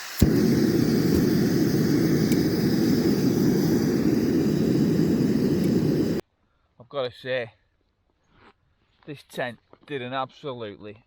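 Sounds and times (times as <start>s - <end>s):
wind rumbling over microphone: 0.2s - 6.2s.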